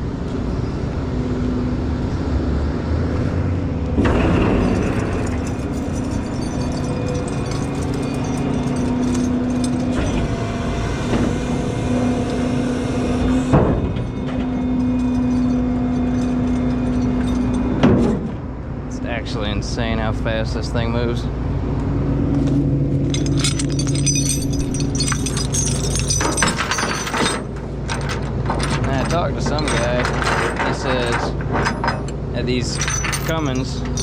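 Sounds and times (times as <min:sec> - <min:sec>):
diesel engine running: 0:00.0 - 0:34.0
loud clatter: 0:04.0 - 0:10.4, 0:23.1 - 0:34.0
rattling: 0:04.0 - 0:10.5, 0:13.4 - 0:18.4, 0:23.0 - 0:34.0.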